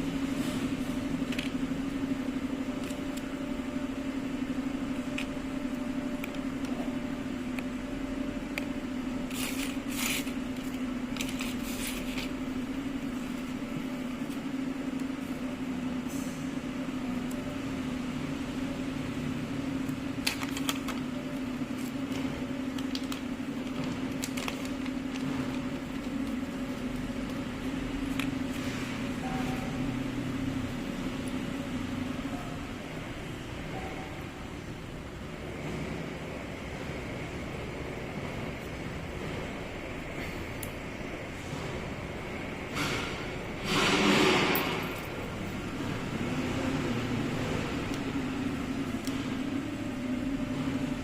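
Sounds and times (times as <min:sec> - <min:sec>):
steady electric hum: 0:00.0 - 0:51.0.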